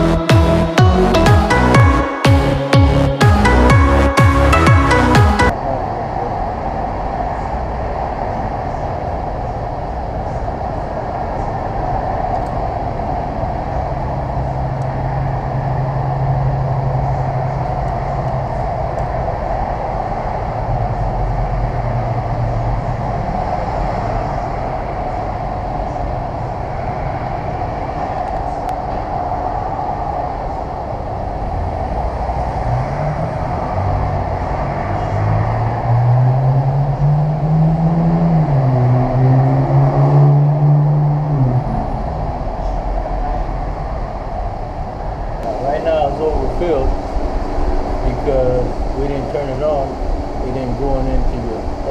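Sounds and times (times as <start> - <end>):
low hum rising in pitch: 0.0 - 5.5
mechanical rumble and hiss: 45.4 - 51.9.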